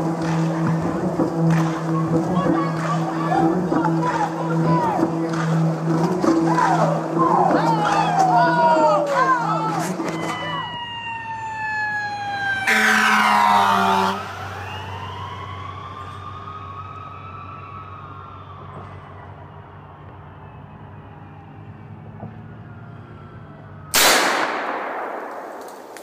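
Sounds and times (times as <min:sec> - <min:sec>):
siren-like wailing tone: 0:00.0 - 0:24.0
loud burst: 0:24.0 - 0:26.0.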